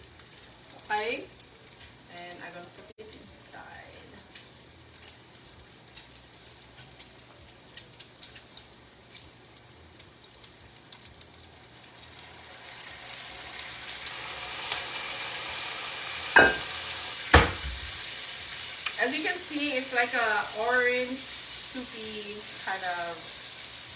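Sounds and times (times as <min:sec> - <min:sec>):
food sizzling in a pot: 0:00.0 - 0:23.9
sharp knock: 0:17.4 - 0:18.0.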